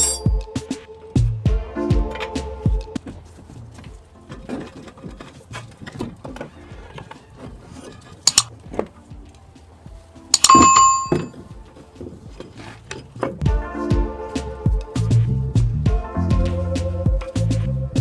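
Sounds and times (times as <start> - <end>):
metal tools knocking and clinking: 0.0 - 0.5
sharp metallic clang: 0.0 - 0.5, 10.4 - 11.4.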